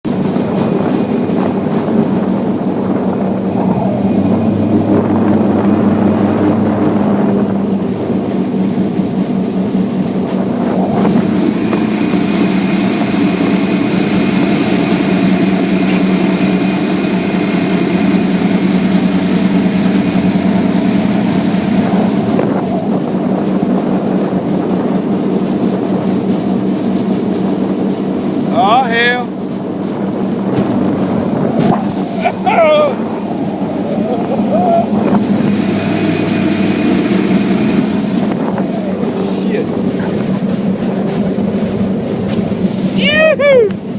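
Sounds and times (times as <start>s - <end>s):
boat motor running: 0.0s - 43.9s.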